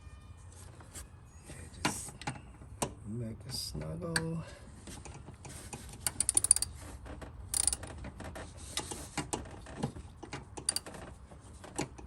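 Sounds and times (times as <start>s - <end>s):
ratchet wrench clicking: 6.0s - 6.7s, 7.5s - 7.8s, 10.7s - 10.9s.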